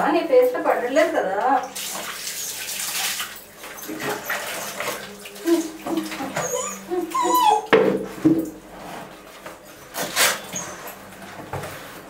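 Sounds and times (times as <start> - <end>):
water splashing: 1.6 - 7.2
puppies whining and squeaking: 3.6 - 7.8, 10.2 - 11.0.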